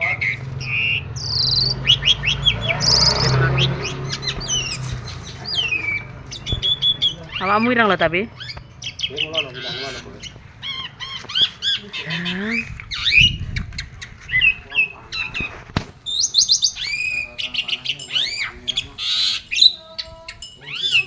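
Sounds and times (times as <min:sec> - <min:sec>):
starling singing varied song: 0:00.0 - 0:21.0.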